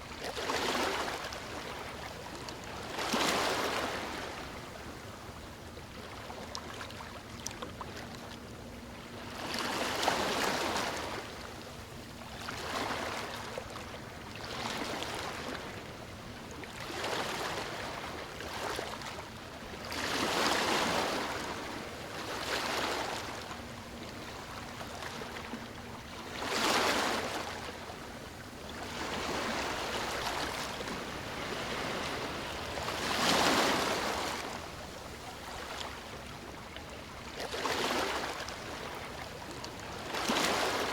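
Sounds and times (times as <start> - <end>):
sea waves surging: 28.8 - 36.4.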